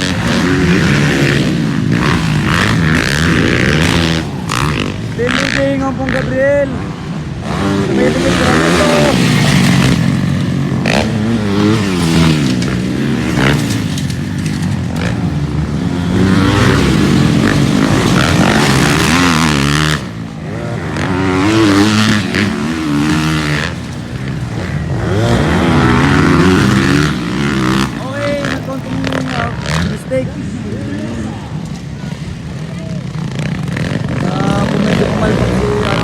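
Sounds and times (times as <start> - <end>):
motocross bike engines revving: 0.0 - 36.0.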